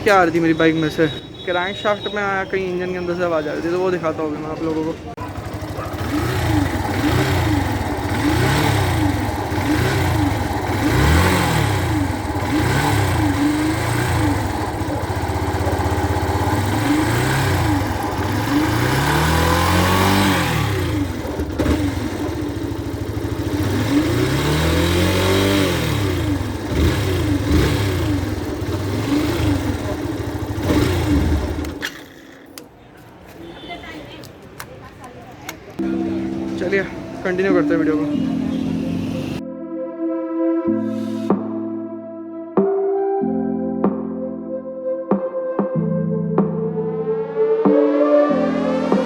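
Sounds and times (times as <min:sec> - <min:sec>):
abnormal engine noise: 0:03.8 - 0:32.7, 0:35.7 - 0:39.4
motorcycle engine revving: 0:04.9 - 0:32.7, 0:35.8 - 0:39.4.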